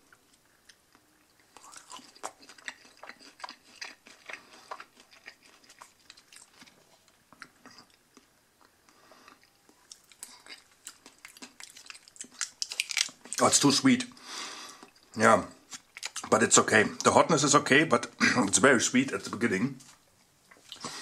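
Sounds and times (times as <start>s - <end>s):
person chewing food: 0.0s - 13.4s, 14.6s - 16.3s, 20.5s - 21.0s.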